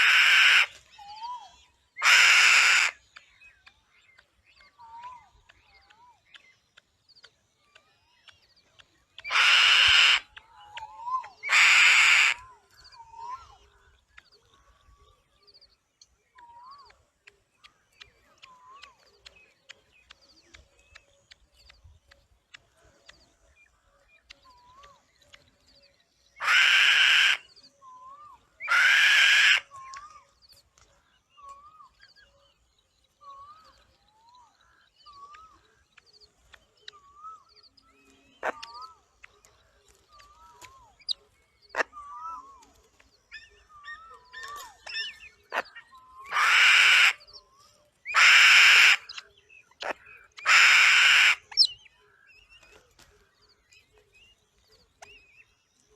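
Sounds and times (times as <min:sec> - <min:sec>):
loud harsh bird screeches: 0:00.0 - 0:00.7, 0:02.0 - 0:03.0, 0:09.3 - 0:10.3, 0:26.4 - 0:27.4, 0:28.7 - 0:29.7, 0:46.3 - 0:47.2, 0:48.1 - 0:49.1, 0:50.4 - 0:51.6.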